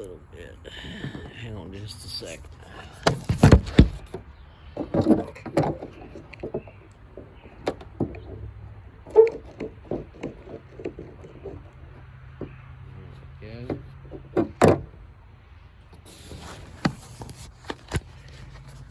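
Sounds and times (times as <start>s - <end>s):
microphone handling knocks: 2.8s - 12.8s.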